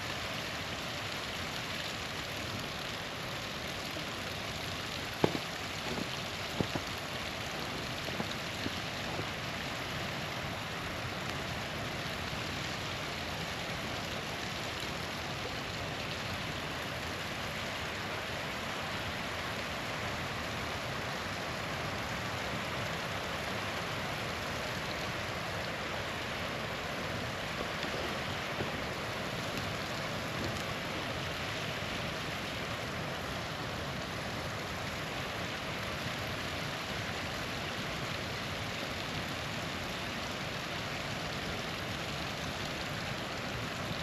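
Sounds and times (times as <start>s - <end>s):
small waterfall rushing: 0.0s - 44.0s
campfire pops and crackles: 3.5s - 9.8s, 26.7s - 33.8s.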